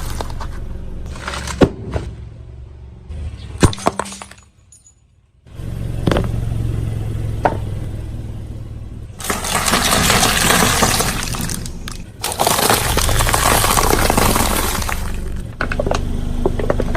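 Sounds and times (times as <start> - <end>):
tyre crushing brittle objects: 0.0 - 2.1, 9.2 - 16.0
low car rumble: 0.0 - 16.9.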